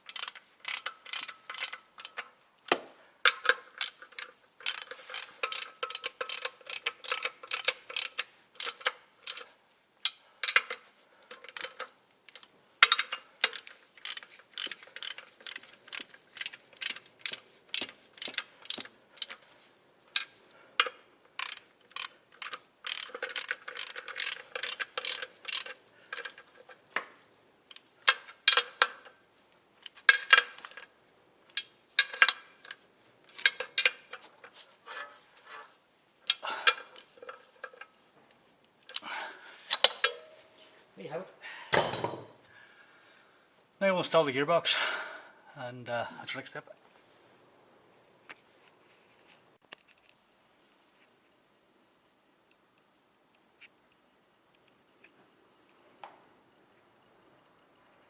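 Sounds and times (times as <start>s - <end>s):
hand ratchet clicking: 0.0s - 19.4s, 20.1s - 26.6s, 31.5s - 34.2s.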